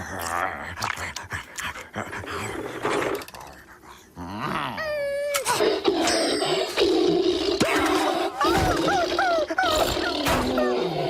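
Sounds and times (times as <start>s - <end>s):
cartoon jackal growling and whimpering: 4.2s - 11.0s.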